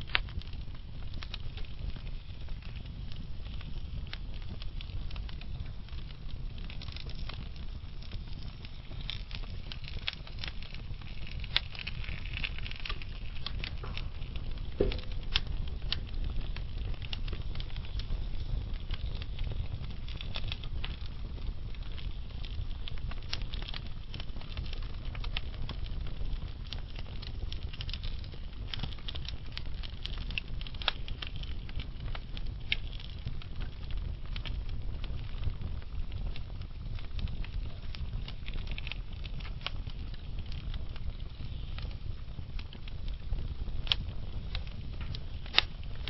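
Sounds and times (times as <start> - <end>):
fire rumbling in fireplace: 0.0 - 46.0
logs crackling and popping: 0.0 - 46.0.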